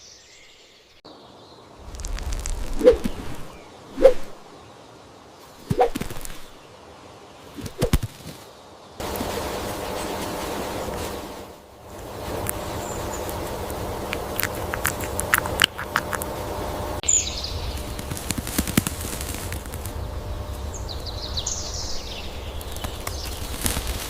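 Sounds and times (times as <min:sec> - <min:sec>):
high falling bird calls: 0:00.0 - 0:24.0
steady hiss: 0:08.6 - 0:24.0.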